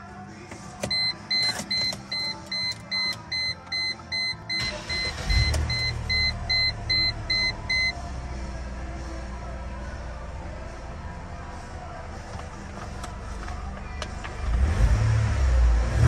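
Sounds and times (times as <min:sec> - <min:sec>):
car engine cranking and starting: 0:00.5 - 0:08.8, 0:12.1 - 0:16.0
dashboard warning chime beeping: 0:00.8 - 0:08.0
car engine idling: 0:04.3 - 0:16.0.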